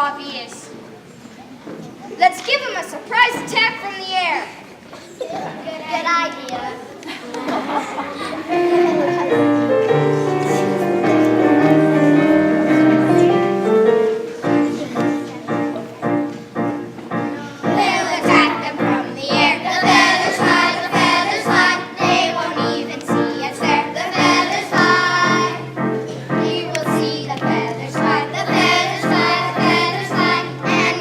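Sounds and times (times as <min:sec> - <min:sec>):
instrumental held chords: 0:08.5 - 0:31.0
steady beat: 0:08.6 - 0:31.0
children singing: 0:17.2 - 0:31.0.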